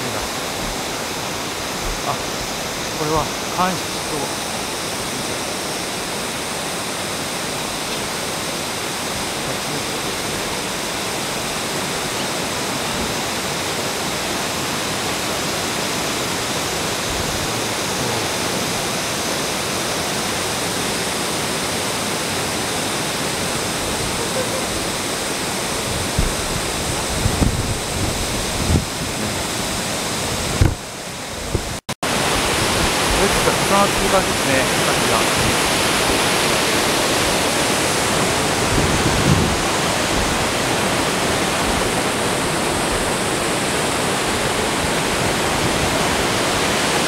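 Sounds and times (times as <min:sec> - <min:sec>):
waterfall roaring: 0:00.0 - 0:47.0
low thumps: 0:00.2 - 0:01.0, 0:01.7 - 0:02.6.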